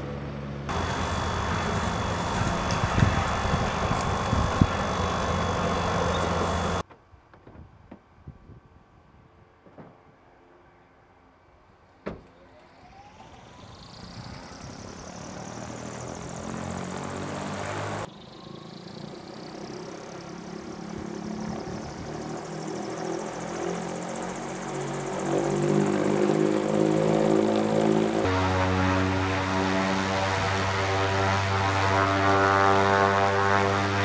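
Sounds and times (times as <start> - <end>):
propeller noise: 0.1 - 6.8, 12.6 - 34.0
electric motor whine: 0.7 - 6.8, 21.1 - 34.0.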